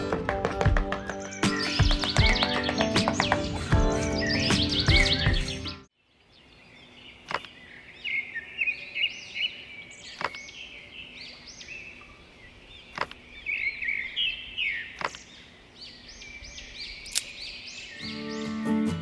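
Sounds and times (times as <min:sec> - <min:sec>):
small birds chirping: 0:00.7 - 0:19.0
sharp clicks: 0:07.2 - 0:07.6, 0:10.2 - 0:10.4, 0:12.9 - 0:13.2, 0:14.9 - 0:15.3, 0:17.0 - 0:17.4.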